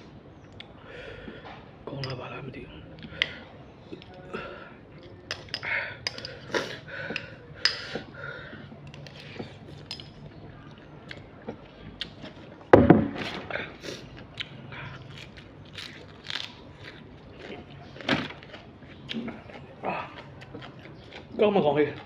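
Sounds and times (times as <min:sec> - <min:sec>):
thump: 0:12.7 - 0:13.3.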